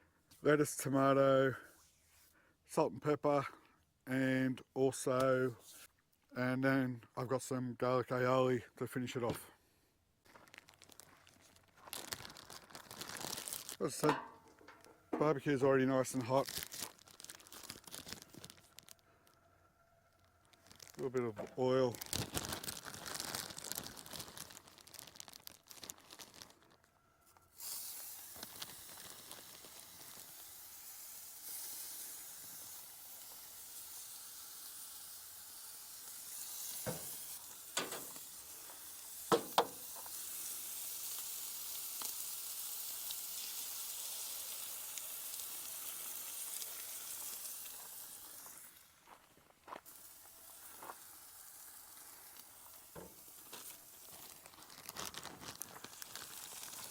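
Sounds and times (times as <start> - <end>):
food sizzling on hotplate: 27.5 - 48.8, 49.8 - 54.6, 55.6 - 56.9.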